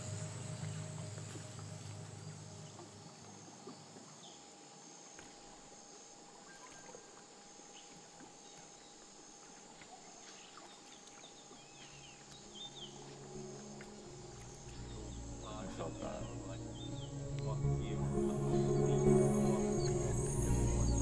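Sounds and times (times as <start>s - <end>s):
high insect drone: 0.0s - 9.7s, 11.7s - 21.0s
bird chirps: 13.7s - 21.0s.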